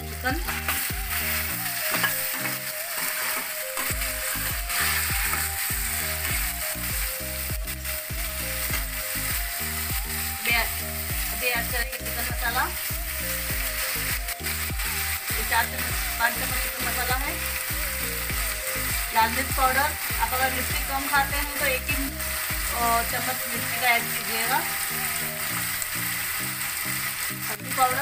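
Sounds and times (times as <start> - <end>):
chicken sizzling in hot oil: 0.0 - 28.0
instrumental music with steady beat: 0.0 - 28.0
metal spatula scraping: 0.5 - 6.9.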